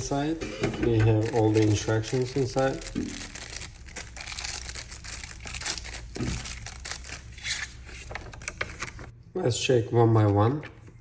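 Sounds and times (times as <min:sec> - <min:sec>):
packaging crinkling: 0:01.1 - 0:09.1
packaging tearing: 0:01.2 - 0:09.0.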